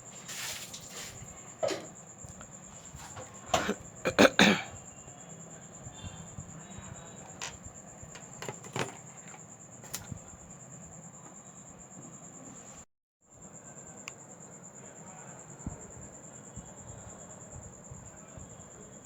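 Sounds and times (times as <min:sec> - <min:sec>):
taps and knocks of tools: 0:07.3 - 0:10.2.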